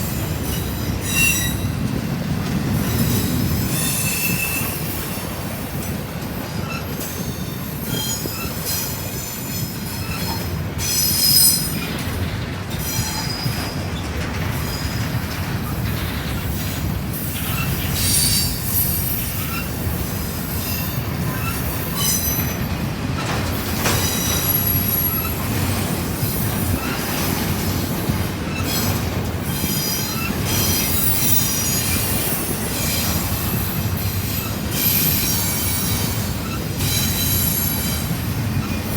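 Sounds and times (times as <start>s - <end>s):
freight train cars rumbling: 0.0s - 38.9s
wheel squeal: 0.5s - 1.8s, 6.6s - 11.9s, 17.4s - 19.8s, 23.8s - 27.3s.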